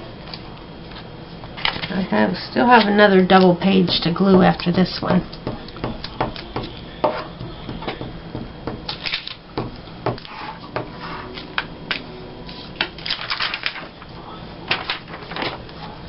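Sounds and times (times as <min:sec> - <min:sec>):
paper rustling and crinkling: 0:12.5 - 0:14.1, 0:14.7 - 0:16.0.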